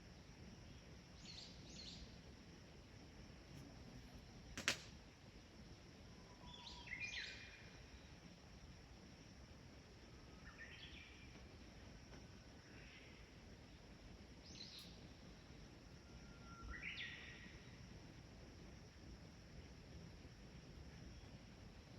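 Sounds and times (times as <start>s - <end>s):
sharp click: 4.6s - 5.0s
small birds chirping: 13.0s - 15.5s.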